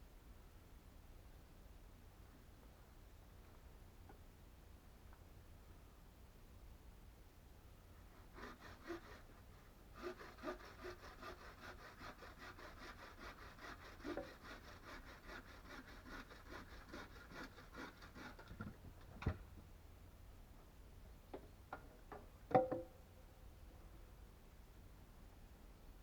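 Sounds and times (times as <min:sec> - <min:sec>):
hand saw cutting wood: 0:08.1 - 0:18.8.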